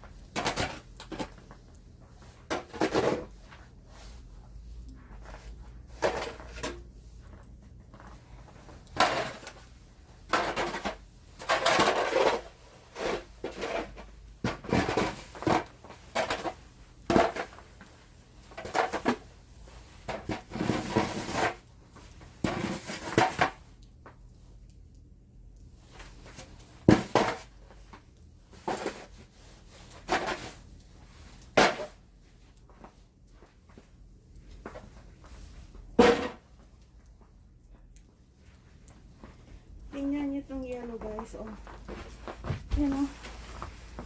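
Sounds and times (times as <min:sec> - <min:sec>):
snow shovel scraping pavement: 0:11.5 - 0:14.0, 0:20.5 - 0:21.6.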